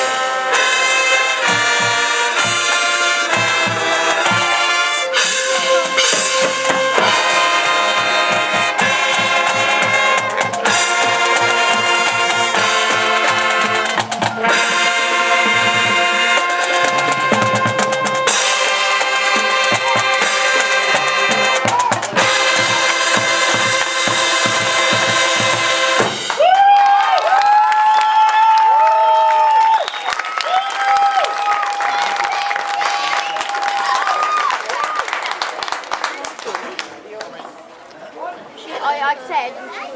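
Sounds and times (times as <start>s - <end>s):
brass instruments melody: 0.0s - 26.5s
drums beating: 0.5s - 27.6s
bass drum strikes: 15.4s - 26.4s.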